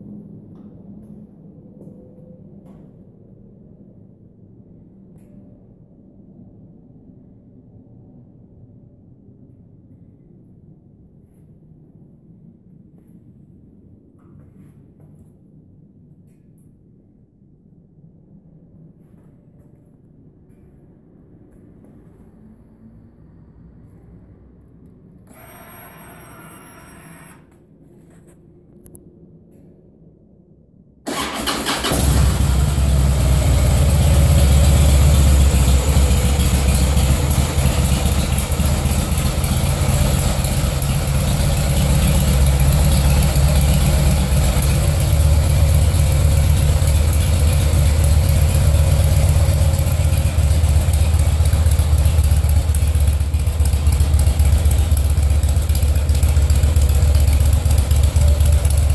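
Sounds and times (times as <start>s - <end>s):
brief high whine: 25.2s - 28.2s
motorcycle engine idling: 31.8s - 58.9s.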